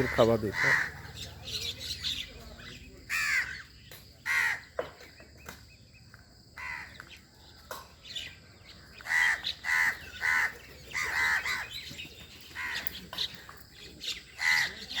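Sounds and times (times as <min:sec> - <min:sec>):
crows cawing: 0:00.0 - 0:01.4, 0:03.1 - 0:04.8, 0:06.6 - 0:07.2, 0:08.8 - 0:13.6, 0:14.3 - 0:15.0.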